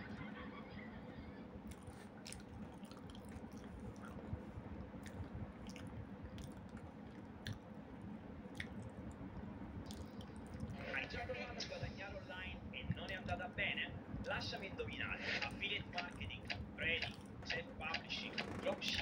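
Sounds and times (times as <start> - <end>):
person chewing soft food: 1.6 - 10.8, 16.8 - 17.5
wet mouth clicks and smacks: 1.6 - 10.8.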